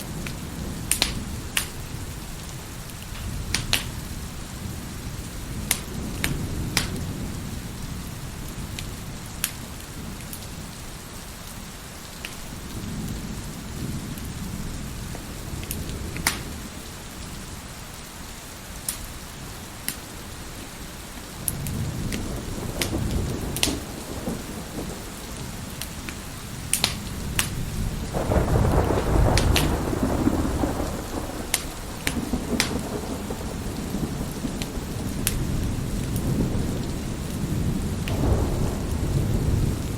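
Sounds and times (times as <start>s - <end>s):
thunder rumbling: 0.0s - 10.7s, 21.4s - 39.9s
heavy rain: 0.0s - 39.9s
wood fire crackling and popping: 0.2s - 1.8s, 2.8s - 4.0s, 5.6s - 7.1s, 8.7s - 10.5s, 15.7s - 16.5s, 18.8s - 19.1s, 21.5s - 23.9s, 25.7s - 27.6s, 28.8s - 29.8s, 31.5s - 32.8s, 34.6s - 36.4s.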